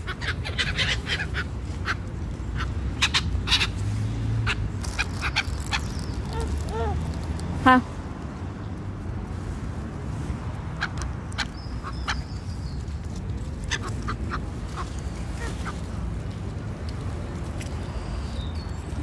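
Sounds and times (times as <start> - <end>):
birds calling: 0.0 - 7.2, 10.7 - 16.1.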